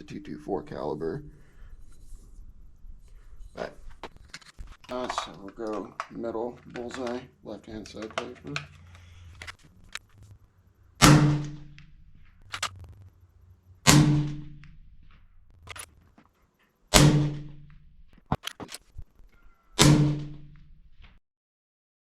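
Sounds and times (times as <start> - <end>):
rifle bolt clicks: 4.0 - 7.2, 7.8 - 10.0, 15.6 - 15.9
suppressed rifle shots: 11.0 - 12.7, 13.8 - 15.9, 16.9 - 17.7, 19.8 - 20.5.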